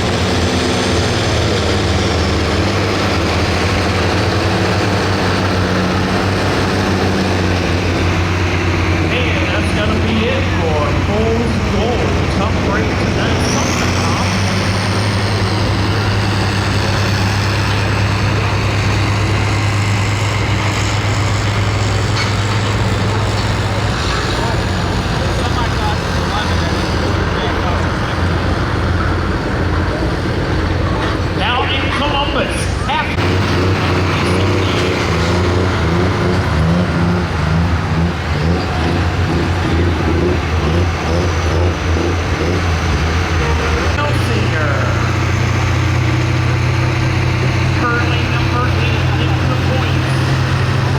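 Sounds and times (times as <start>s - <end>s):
diesel tractor engine running loud: 0.0s - 50.9s.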